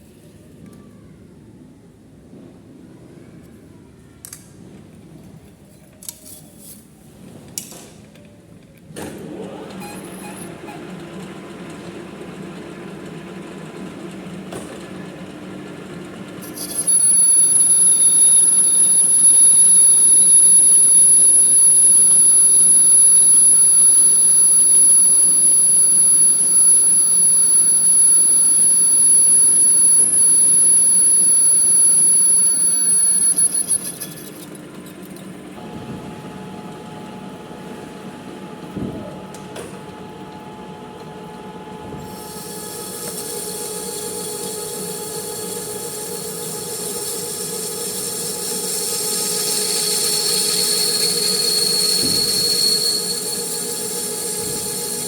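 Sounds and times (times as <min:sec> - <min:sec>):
high-pitched cutting squeal: 0:16.4 - 0:34.4, 0:47.0 - 0:55.0
lathe humming: 0:16.4 - 0:34.6.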